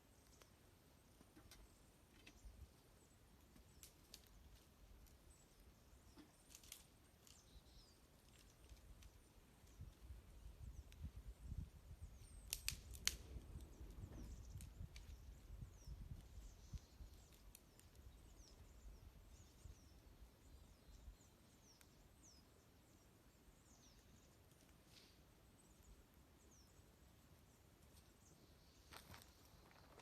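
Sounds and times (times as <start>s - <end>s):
small birds chirping: 0.0s - 30.0s
wood fire crackling and popping: 3.7s - 5.2s, 6.4s - 7.4s, 12.4s - 15.2s.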